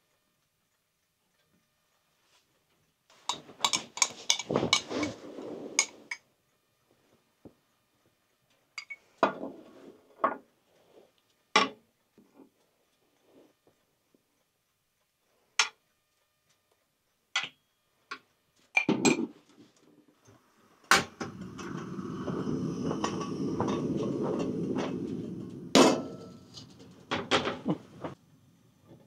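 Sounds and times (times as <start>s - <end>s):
cookware knocking and clinking: 3.3s - 4.9s
steady rushing noise: 20.3s - 28.9s.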